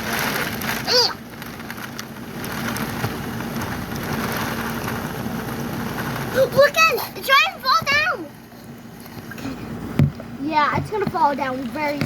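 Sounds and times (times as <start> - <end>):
hard rain pouring: 0.0 - 9.6.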